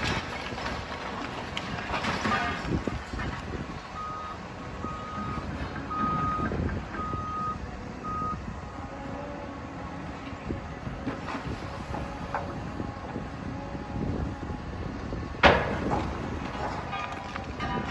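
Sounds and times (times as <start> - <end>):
diesel machinery running: 0.0 - 17.9
back-up alarm beeping: 4.0 - 8.4
machinery knocks: 15.4 - 17.9.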